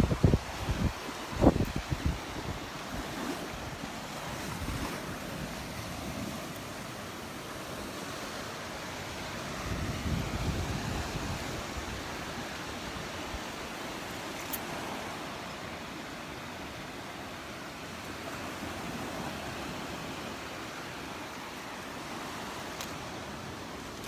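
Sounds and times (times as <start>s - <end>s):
wind buffeting microphone: 0.0s - 6.6s, 9.2s - 13.4s
surf washing onto beach: 0.0s - 24.0s.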